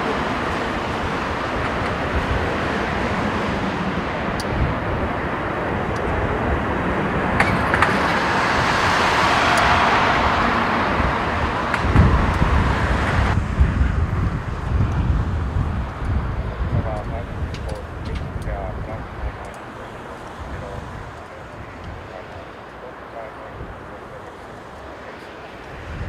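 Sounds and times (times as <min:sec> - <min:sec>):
outdoor vehicle noise: 0:00.0 - 0:26.0
vehicle passing: 0:00.0 - 0:26.0
wind buffeting microphone: 0:00.0 - 0:26.0.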